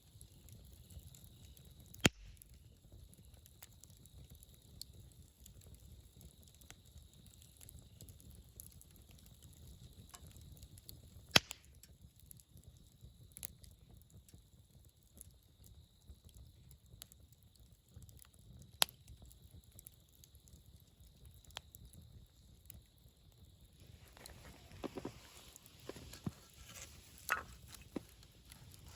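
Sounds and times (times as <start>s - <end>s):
campfire burning: 0.0s - 28.9s
fire pops and crackles: 0.0s - 28.9s
rustling: 23.8s - 28.9s.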